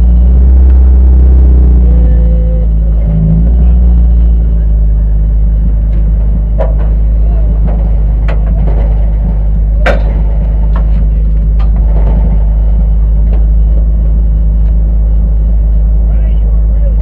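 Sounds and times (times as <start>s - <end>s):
car engine droning: 0.0s - 17.0s
sharp knocks and rattles: 5.6s - 13.8s.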